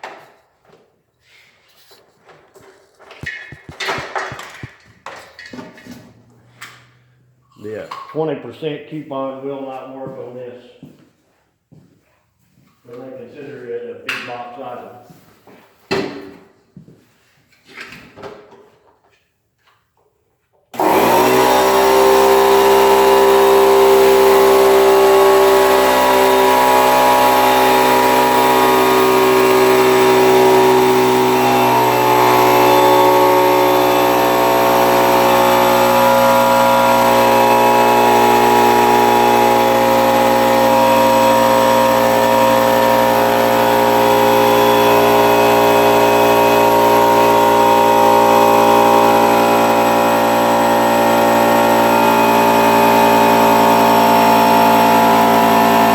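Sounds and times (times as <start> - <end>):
air compressor running: 1.2 - 8.1, 20.8 - 55.9.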